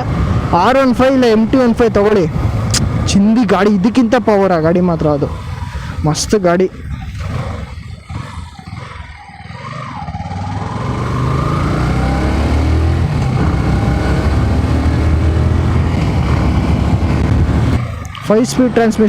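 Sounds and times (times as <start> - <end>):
motorcycle engine accelerating: 6.8 - 19.0.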